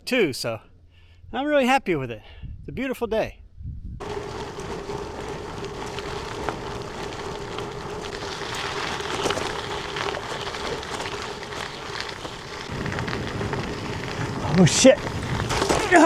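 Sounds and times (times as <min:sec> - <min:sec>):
bicycle tyres crunching on gravel: 0:04.0 - 0:16.0.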